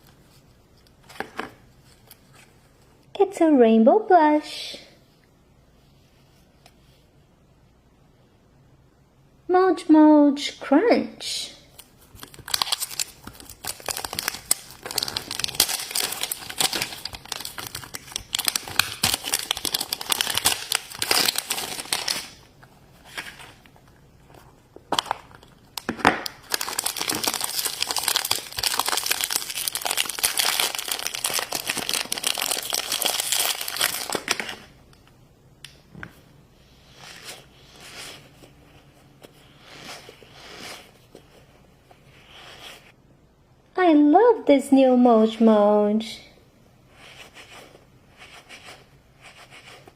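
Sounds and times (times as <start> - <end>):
packaging crinkling and tearing: 11.8 - 23.7, 24.8 - 34.7.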